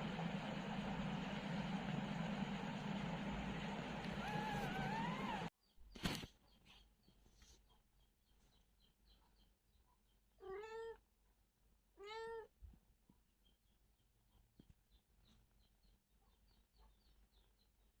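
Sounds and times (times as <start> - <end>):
cat meowing: 10.4 - 11.0, 12.0 - 12.5.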